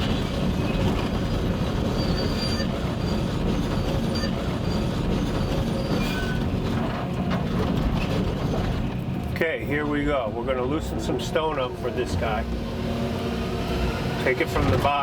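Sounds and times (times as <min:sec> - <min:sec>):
steel tracks squealing: 0:00.0 - 0:09.1
diesel engine under load: 0:00.0 - 0:15.0.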